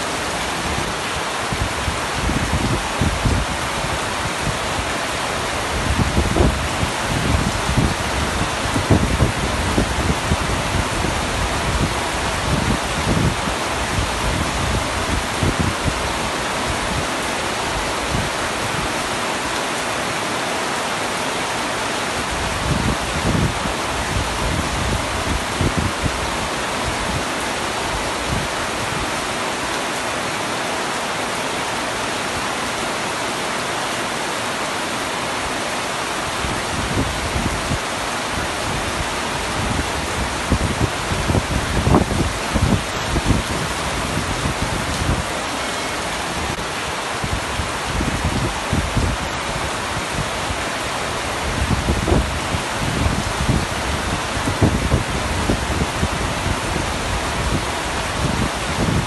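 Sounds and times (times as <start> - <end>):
heavy rain on a tent roof: 0.0 - 59.0.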